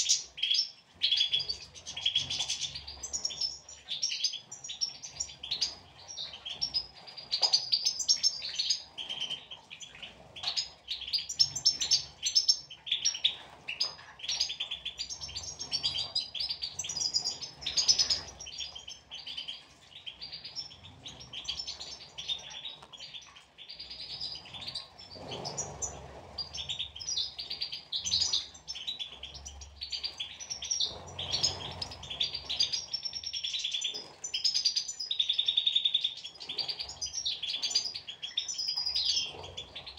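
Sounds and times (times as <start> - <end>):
finches twittering and singing: 0.0 - 39.9.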